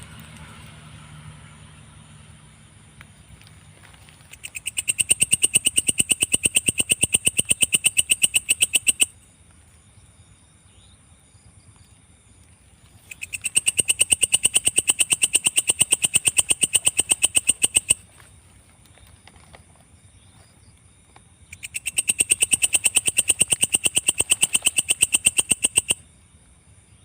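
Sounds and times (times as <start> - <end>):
high insect drone: 0.0 - 27.0
katydid rapid clicking pulses: 4.3 - 9.2, 13.0 - 18.2, 21.5 - 26.0.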